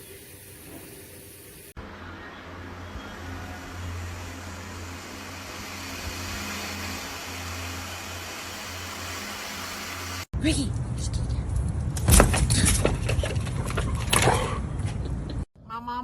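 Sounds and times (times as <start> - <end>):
low mechanical hum with hiss: 0.0 - 10.3.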